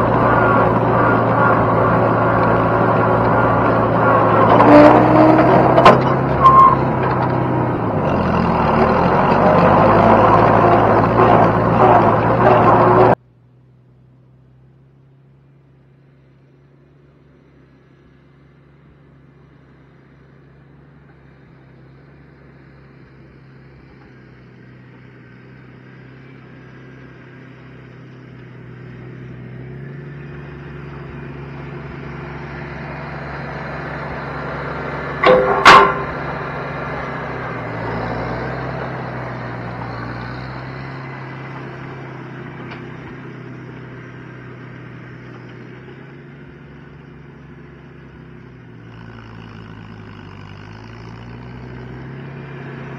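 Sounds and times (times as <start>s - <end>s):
vehicle engine running: 0.0s - 52.9s
short horn toots: 6.3s - 7.0s, 35.2s - 36.3s.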